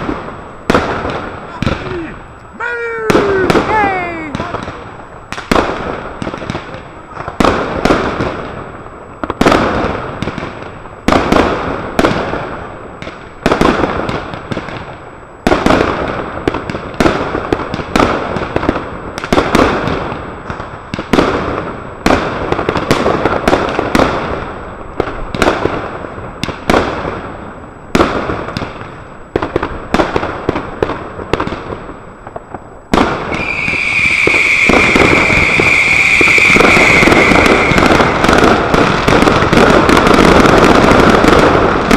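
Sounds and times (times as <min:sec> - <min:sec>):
fireworks banging and crackling: 0:00.0 - 0:41.9
firework hiss with high whistle: 0:33.0 - 0:41.9.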